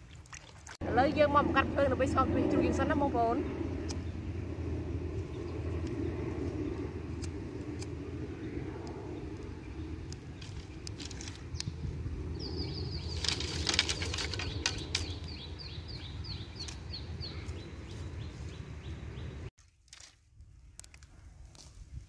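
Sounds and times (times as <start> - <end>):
steady low rumble: 0.8 - 19.5
dry sticks clicking and snapping: 7.1 - 8.0, 8.8 - 11.8, 13.1 - 15.4, 19.6 - 21.8.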